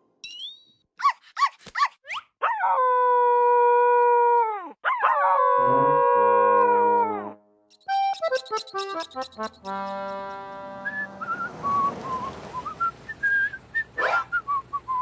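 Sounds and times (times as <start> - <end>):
dog yelping: 1.0 - 2.8, 14.0 - 14.4
dog howling: 2.4 - 7.4
low steady notes: 5.7 - 13.8.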